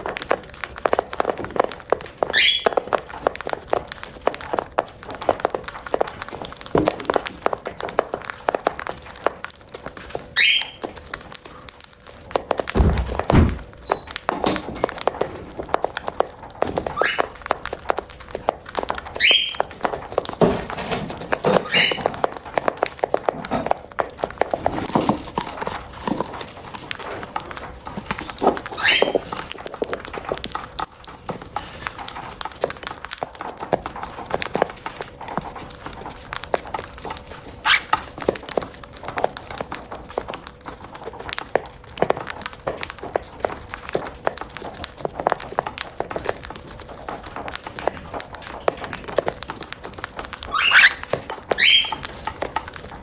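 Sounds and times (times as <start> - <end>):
beak clicks and taps: 0.0 - 53.0.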